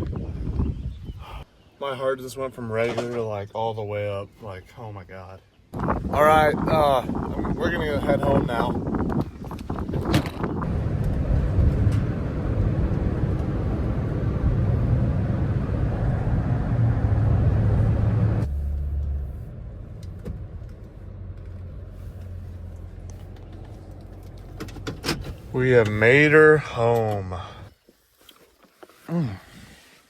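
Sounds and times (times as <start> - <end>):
truck engine and road noise: 8.8 - 27.7.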